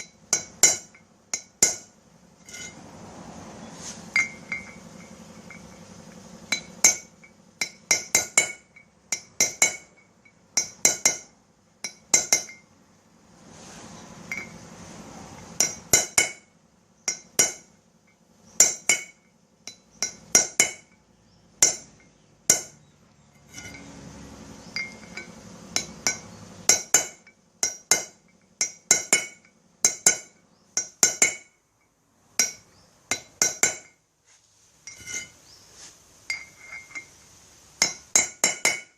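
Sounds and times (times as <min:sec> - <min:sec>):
hammer striking steel punch: 0:06.5 - 0:12.6, 0:15.6 - 0:16.5, 0:25.8 - 0:31.6, 0:32.4 - 0:34.0, 0:37.8 - 0:38.9.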